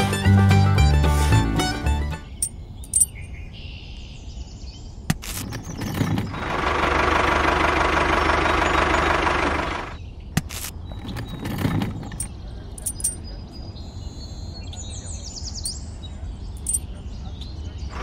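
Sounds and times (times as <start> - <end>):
engine running: 5.4 - 10.0
light metal clicks: 11.5 - 13.2.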